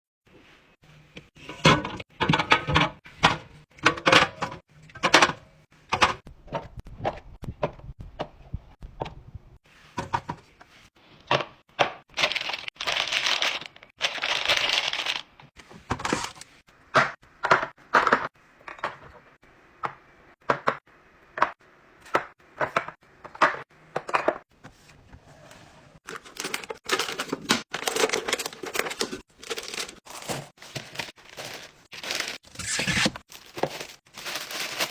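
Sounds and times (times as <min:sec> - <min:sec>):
packaging rustling: 0:12.2 - 0:15.3, 0:26.0 - 0:34.9
packaging clicks and crinkles: 0:12.2 - 0:15.4, 0:26.0 - 0:34.9.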